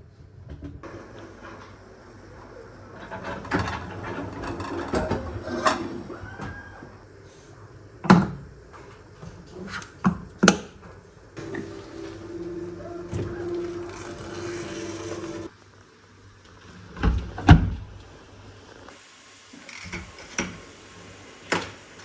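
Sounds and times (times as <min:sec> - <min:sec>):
objects clattering and rustling: 0:00.4 - 0:06.2
steady hum: 0:11.4 - 0:15.5.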